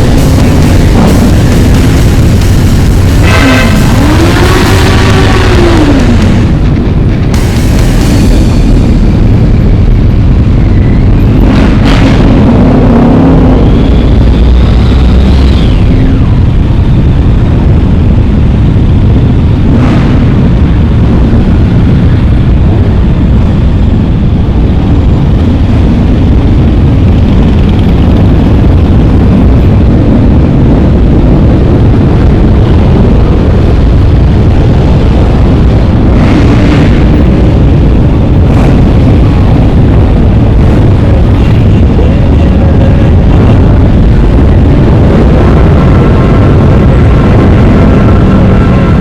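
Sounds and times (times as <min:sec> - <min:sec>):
motorcycle engine running: 0:00.0 - 0:49.0
wind buffeting microphone: 0:00.0 - 0:49.0.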